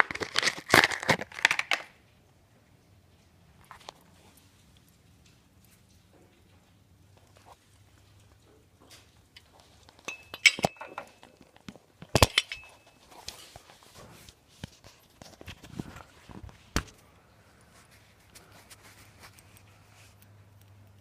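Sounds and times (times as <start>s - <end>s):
metallic clinks and knocks: 8.1s - 13.4s.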